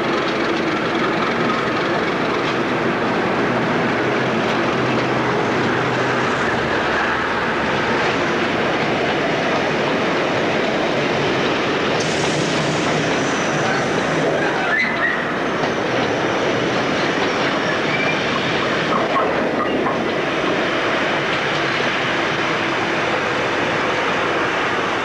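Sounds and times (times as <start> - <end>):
tank wagons rolling on rails: 0.0 - 9.6
diesel locomotive engine: 0.0 - 25.0.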